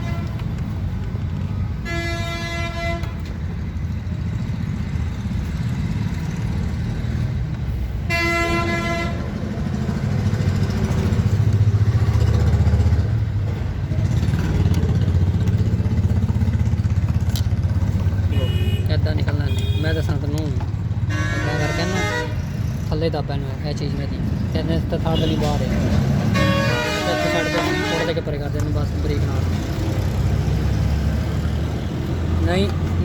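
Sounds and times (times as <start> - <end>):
car horn honks: 18.2 - 20.2, 21.1 - 22.4, 26.3 - 28.2.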